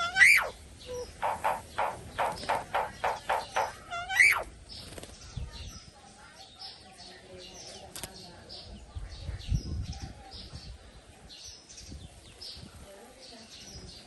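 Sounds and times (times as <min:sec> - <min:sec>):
bird calling: 0:00.0 - 0:04.5
high bird chirps: 0:00.0 - 0:05.9.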